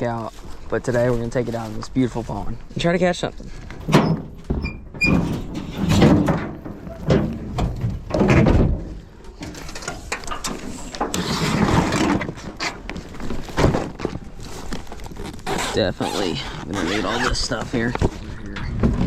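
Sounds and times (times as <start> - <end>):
kayak and fishing gear handled: 0.0 - 2.8, 8.9 - 19.0
scraping and rustling: 3.4 - 19.0.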